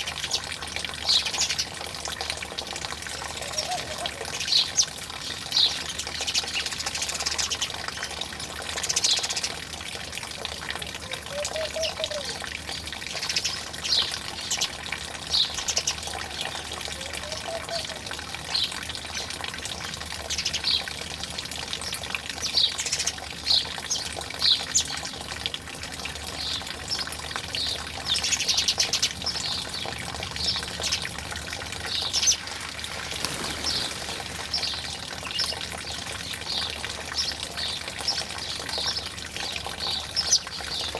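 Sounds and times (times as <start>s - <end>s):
running water: 0.0s - 40.9s
small birds chirping: 33.1s - 40.9s.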